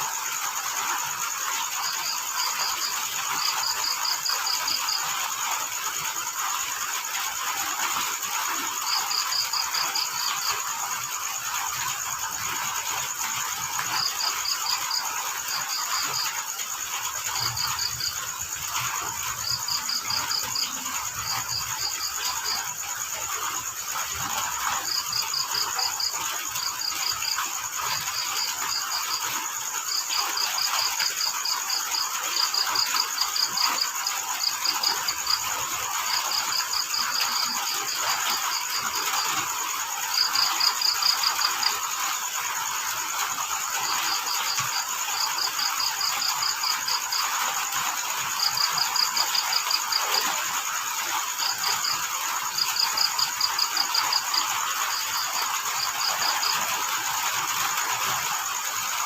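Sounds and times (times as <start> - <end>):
crickets chirping: 0.0 - 59.0
rain falling: 0.0 - 59.0.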